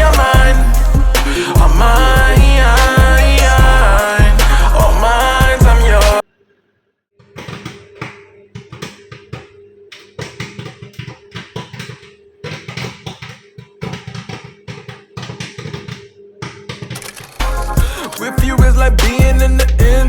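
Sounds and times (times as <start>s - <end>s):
popcorn popping: 7.2s - 18.3s.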